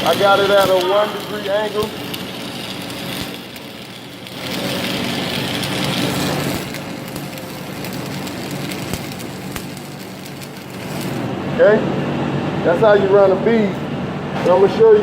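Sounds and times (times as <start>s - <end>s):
welding arc crackling: 0.0s - 11.7s
steady low hum: 0.0s - 15.0s.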